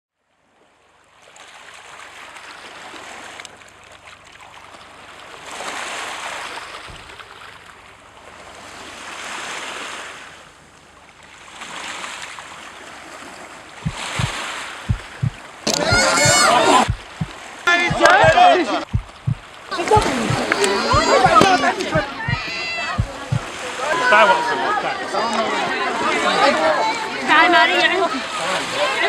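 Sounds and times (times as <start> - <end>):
sea waves washing ashore: 1.4 - 29.0
short low thumps: 13.8 - 23.5.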